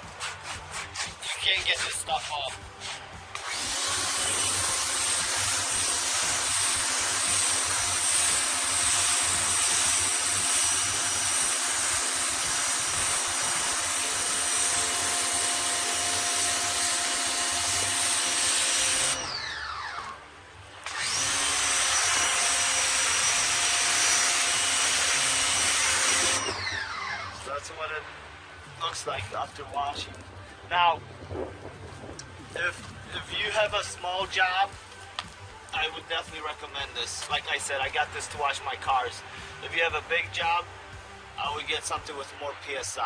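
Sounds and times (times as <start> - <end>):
water jet hissing on concrete: 0.4 - 19.2
pressure washer motor whining: 3.3 - 28.0.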